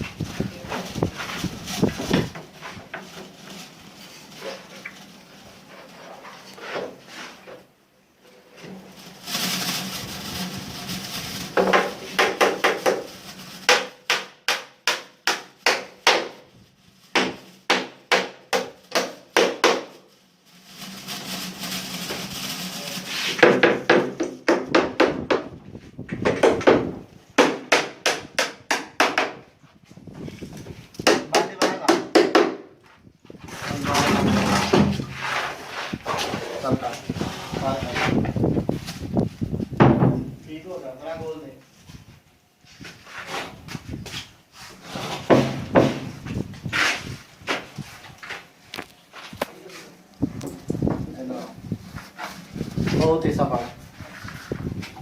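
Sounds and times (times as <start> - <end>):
hammer striking wood: 11.6 - 13.0, 13.7 - 16.4, 17.1 - 19.9, 23.4 - 25.5, 26.2 - 29.4, 31.0 - 32.7, 45.3 - 46.1.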